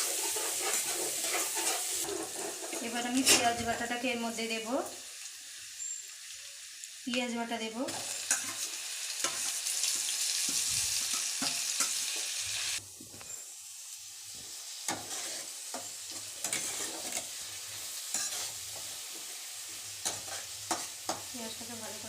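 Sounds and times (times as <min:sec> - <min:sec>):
spatula scraping a pan: 0:00.0 - 0:03.6, 0:07.9 - 0:12.3, 0:14.8 - 0:21.3
paste sizzling in a pan: 0:00.0 - 0:22.0.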